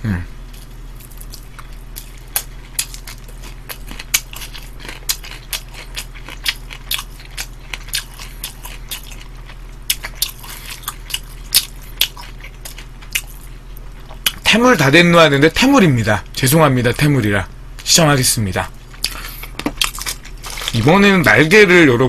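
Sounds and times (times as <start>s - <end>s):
low electrical hum: 0.0s - 22.0s
chewing crunchy food: 0.4s - 14.5s, 18.7s - 21.4s.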